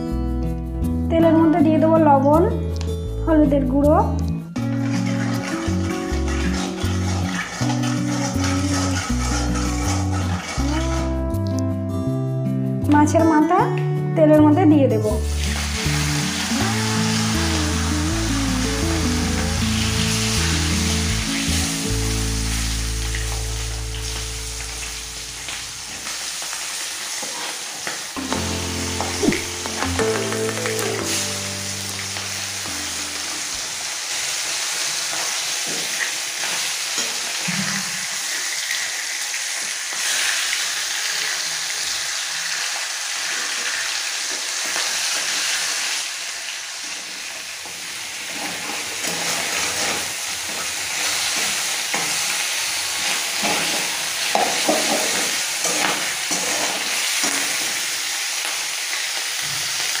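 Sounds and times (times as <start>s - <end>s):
fish frying in hot oil: 4.6s - 11.2s, 15.2s - 28.2s, 30.8s - 60.0s
metal spatula scraping pan: 4.7s - 11.1s, 48.3s - 51.2s, 53.3s - 57.8s.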